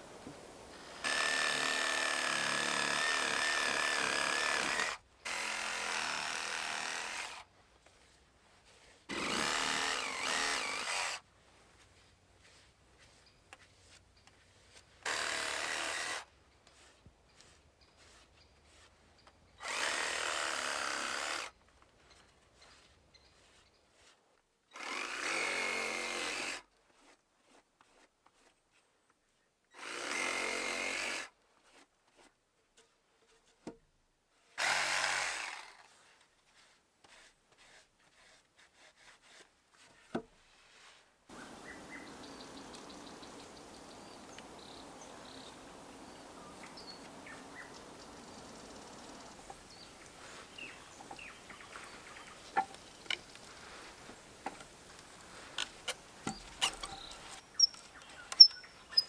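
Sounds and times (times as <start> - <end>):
outdoor background with ticks: 16.4 - 19.7, 41.3 - 59.0.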